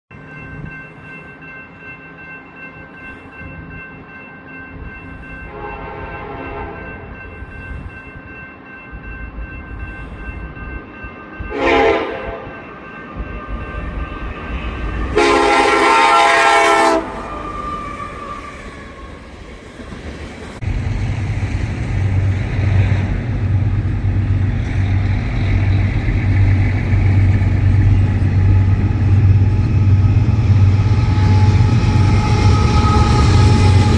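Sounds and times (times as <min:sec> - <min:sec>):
locomotive engine rumbling: 0:00.1 - 0:33.9
train horn blasts: 0:05.5 - 0:07.0, 0:11.5 - 0:12.6, 0:15.1 - 0:18.4, 0:30.6 - 0:33.9.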